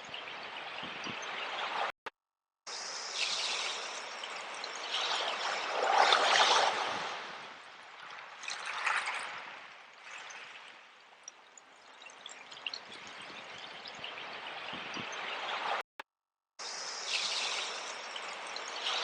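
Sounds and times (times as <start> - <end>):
sea waves washing in: 3.8 - 10.7.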